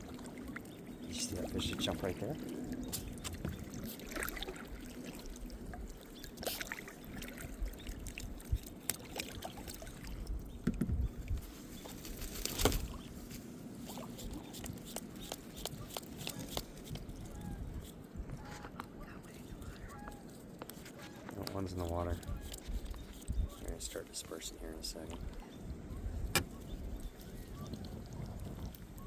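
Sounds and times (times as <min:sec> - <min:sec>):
small water splashes: 0:00.0 - 0:10.7, 0:26.3 - 0:29.0
water trickling and dripping: 0:00.0 - 0:11.4, 0:26.2 - 0:29.0.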